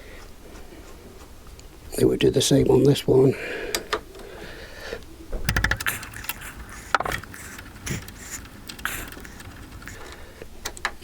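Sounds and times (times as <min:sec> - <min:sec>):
spanner clicking on metal: 0:05.5 - 0:10.1.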